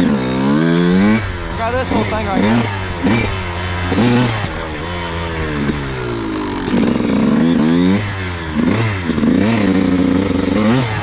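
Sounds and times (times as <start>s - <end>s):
off-road engine revving: 0.0s - 11.0s.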